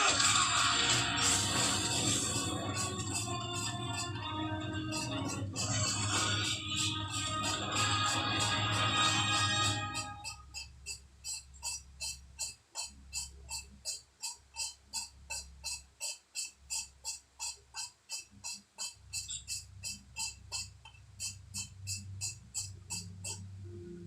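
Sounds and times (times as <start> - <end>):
gritty clicks of valve lapping tool: 10.6 - 23.4.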